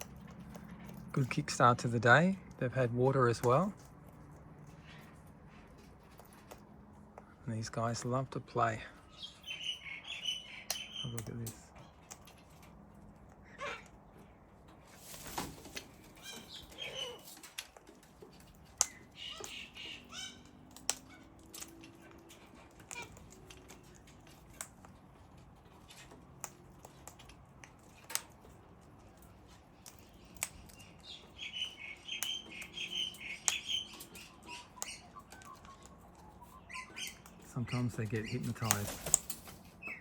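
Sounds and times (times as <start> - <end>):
cockatoos calling softly: 18.7 - 24.0.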